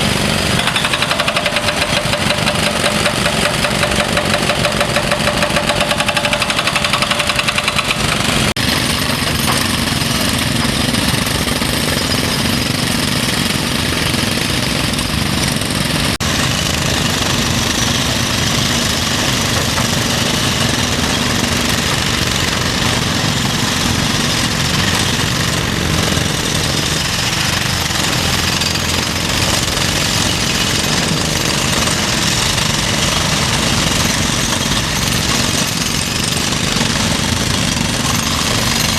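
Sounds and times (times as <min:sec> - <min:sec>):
hydraulic breaker hammering: 0:00.0 - 0:12.8, 0:16.3 - 0:38.9.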